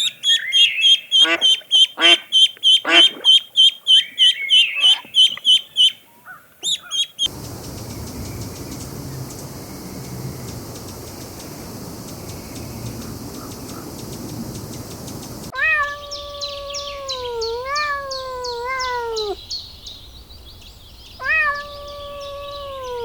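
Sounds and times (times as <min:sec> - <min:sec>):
fast high chirping: 0:00.9 - 0:05.9, 0:06.6 - 0:15.5
cat meowing: 0:15.5 - 0:19.4, 0:21.2 - 0:23.0.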